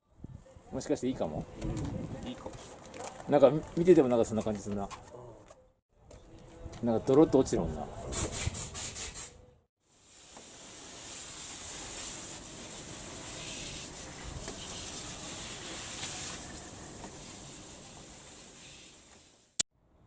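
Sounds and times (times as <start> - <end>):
water spraying hiss: 10.0 - 19.6.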